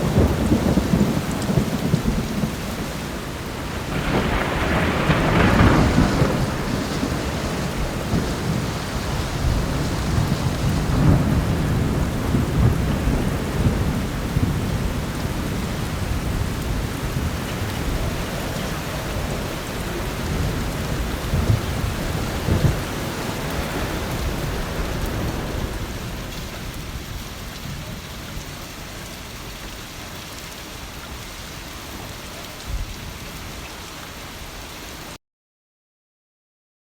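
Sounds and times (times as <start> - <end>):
rolling thunder: 0.0 - 28.6
heavy rain: 0.0 - 35.2.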